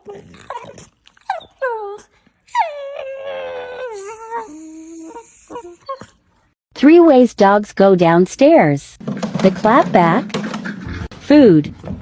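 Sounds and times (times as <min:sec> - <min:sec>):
dog whining: 0:00.0 - 0:06.3.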